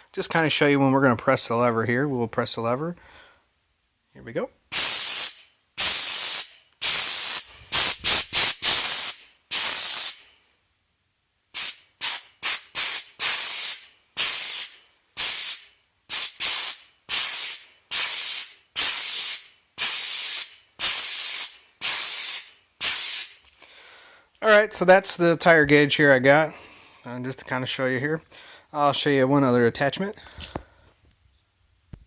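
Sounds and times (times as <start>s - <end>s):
compressed air hissing in blasts: 4.7s - 10.3s, 11.6s - 23.4s.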